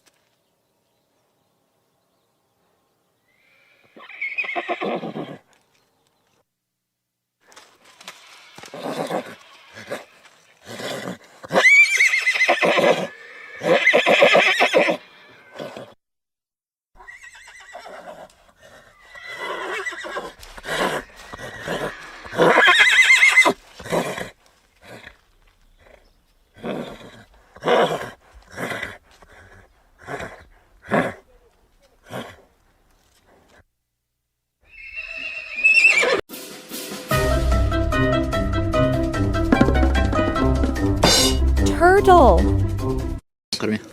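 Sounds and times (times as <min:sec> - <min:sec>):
horse neighing: 0:03.3 - 0:05.4, 0:10.8 - 0:15.9, 0:18.9 - 0:24.1, 0:34.7 - 0:36.2
horse snorting: 0:08.6 - 0:11.7, 0:17.9 - 0:22.6, 0:23.8 - 0:31.2.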